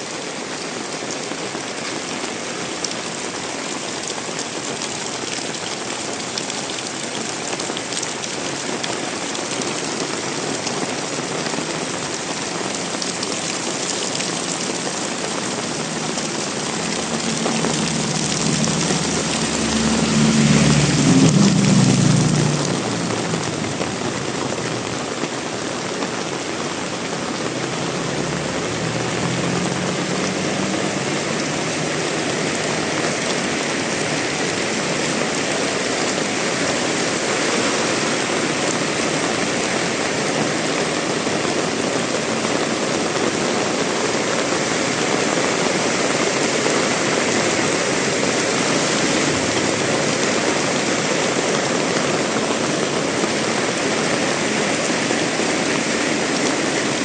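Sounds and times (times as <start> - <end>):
heavy rain pouring: 0.0 - 57.0
low engine hum passing: 14.3 - 25.0, 27.3 - 39.5, 45.7 - 52.8.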